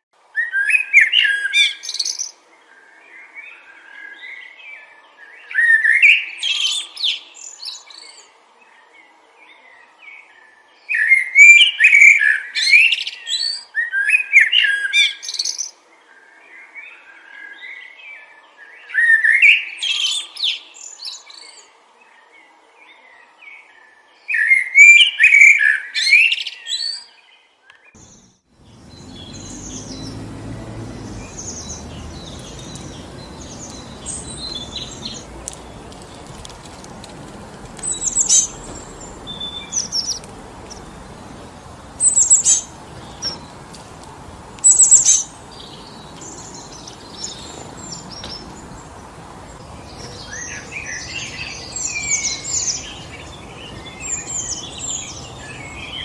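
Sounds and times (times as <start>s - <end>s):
wind through forest trees: 0.2s - 56.0s
songbirds chirping and singing: 0.4s - 56.0s
sharp bird calls: 28.0s - 56.0s.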